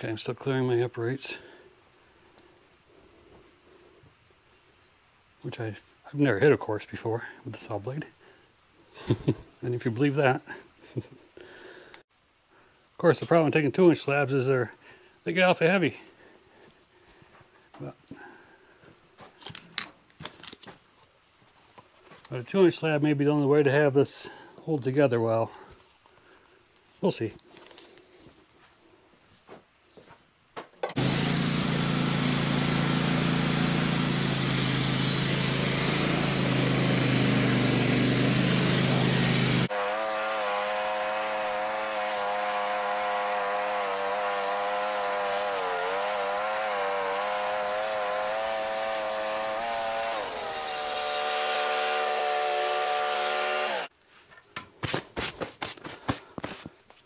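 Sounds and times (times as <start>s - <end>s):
bandsaw mill cutting log: 30.8s - 53.9s.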